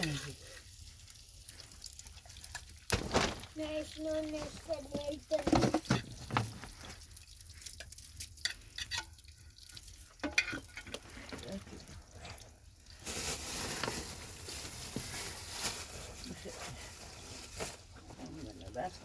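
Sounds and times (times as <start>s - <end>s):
food sizzling in a pan: 0.0s - 2.7s
cooking taps and scrapes: 0.0s - 3.0s, 4.2s - 12.5s.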